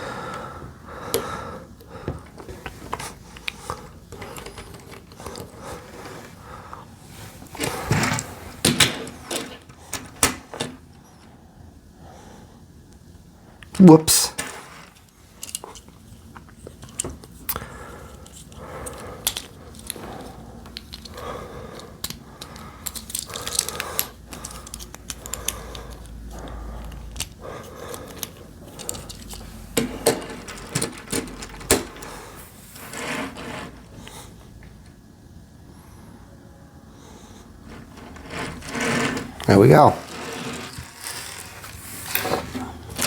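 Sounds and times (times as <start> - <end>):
plastic bricks clicking together: 22.0 - 26.1.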